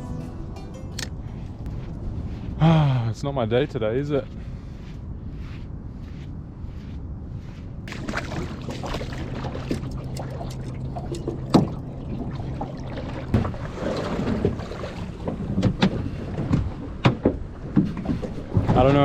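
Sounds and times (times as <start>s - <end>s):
wind buffeting microphone: 1.2s - 19.0s
boat motor humming: 7.9s - 18.7s
knocks from boat and gear: 13.3s - 19.0s.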